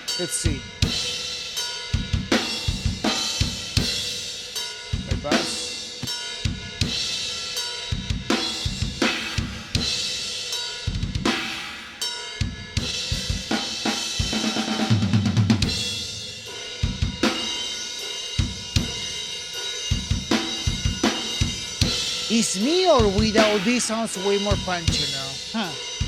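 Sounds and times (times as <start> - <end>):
metal drumming: 20.0 - 26.0.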